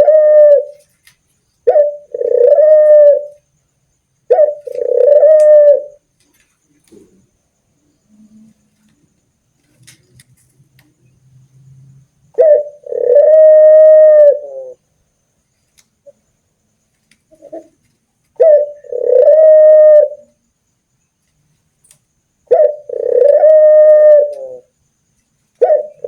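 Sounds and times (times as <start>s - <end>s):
dove cooing: 0.0s - 3.5s, 4.3s - 7.4s, 8.0s - 14.9s, 17.3s - 20.4s, 22.4s - 24.8s, 25.6s - 26.0s.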